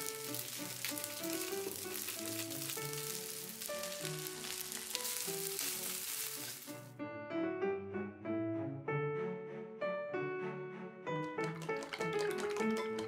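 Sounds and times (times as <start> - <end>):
fried rice sizzling in a pan: 0.0 - 6.9
background music: 0.0 - 13.0.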